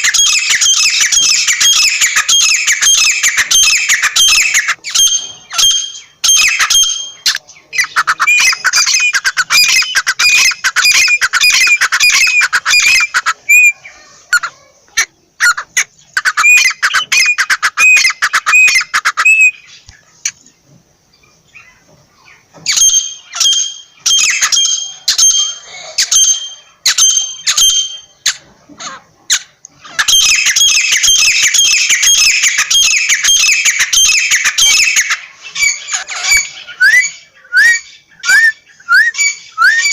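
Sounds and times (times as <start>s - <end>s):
francolin calling: 0.0s - 20.0s, 29.8s - 39.9s.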